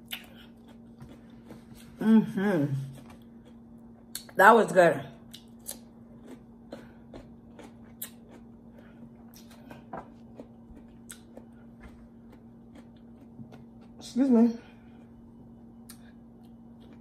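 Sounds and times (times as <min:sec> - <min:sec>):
chewing cucumber crunches: 0:00.0 - 0:02.0, 0:05.2 - 0:14.1
faint steady hum: 0:00.0 - 0:17.0.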